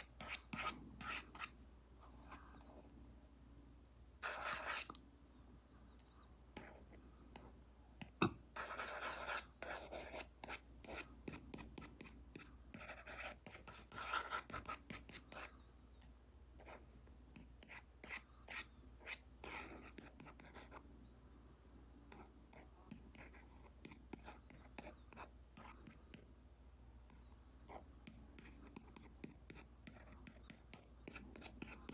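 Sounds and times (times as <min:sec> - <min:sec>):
stylus drawing strokes on screen: 0:00.0 - 0:01.6, 0:04.2 - 0:05.0, 0:08.6 - 0:15.5, 0:27.1 - 0:31.9.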